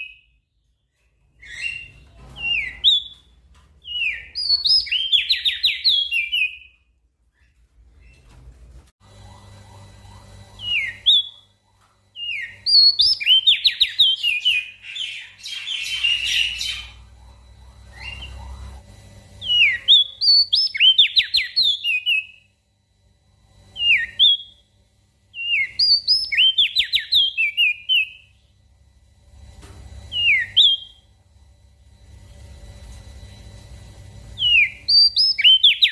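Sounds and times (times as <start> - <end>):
faint low hum: 0.0 - 35.9
small songbird singing: 1.4 - 6.8, 10.6 - 11.5, 12.2 - 18.8, 19.4 - 22.5, 23.8 - 24.6, 25.3 - 28.4, 30.1 - 31.1, 34.4 - 35.9.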